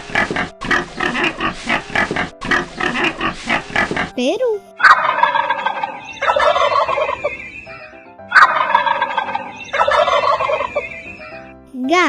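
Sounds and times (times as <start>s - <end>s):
turkey gobbling: 4.8s - 11.2s.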